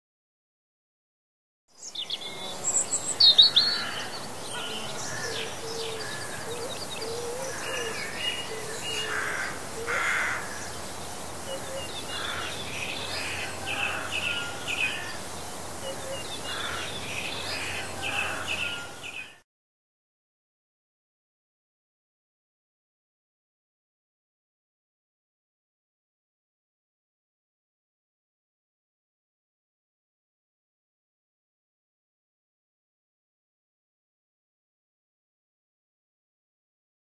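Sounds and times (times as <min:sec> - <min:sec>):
birds chirping and singing: 0:01.8 - 0:19.4
steady background hiss: 0:01.8 - 0:19.4.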